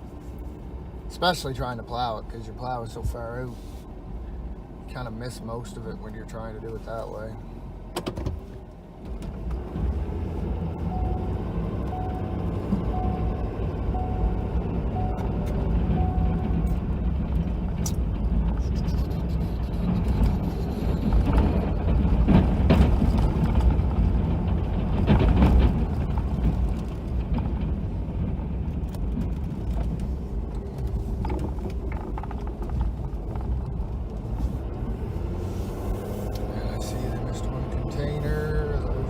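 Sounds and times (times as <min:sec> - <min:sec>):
truck engine under load: 0:07.6 - 0:39.0.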